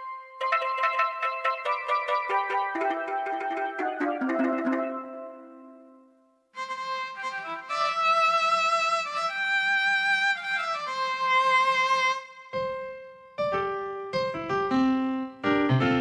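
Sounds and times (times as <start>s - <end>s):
keyboard playing bowed string melody: 0.0s - 12.9s.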